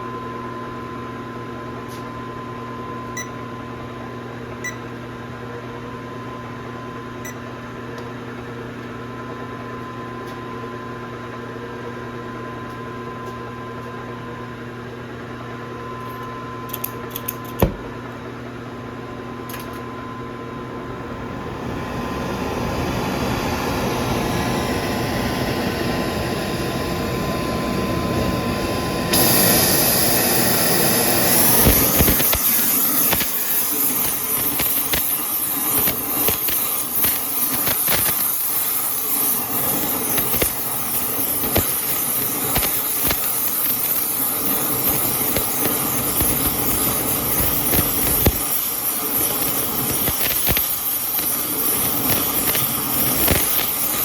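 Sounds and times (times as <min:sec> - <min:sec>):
electrical hum of shop equipment: 0:00.0 - 0:54.0
hissing noise: 0:29.0 - 0:54.0.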